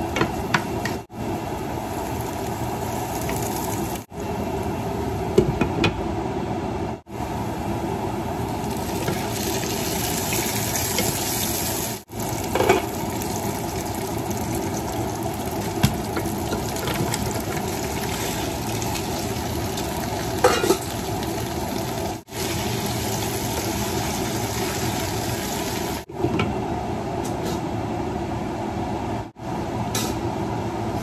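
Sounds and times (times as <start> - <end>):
food sizzling in oil: 0.0 - 4.1, 8.4 - 26.1.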